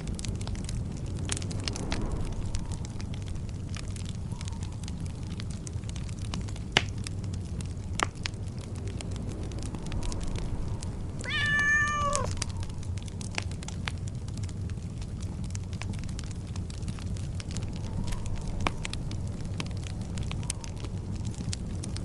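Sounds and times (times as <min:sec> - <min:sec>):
wood fire crackling: 0:00.0 - 0:22.0
cat meowing: 0:11.2 - 0:12.4.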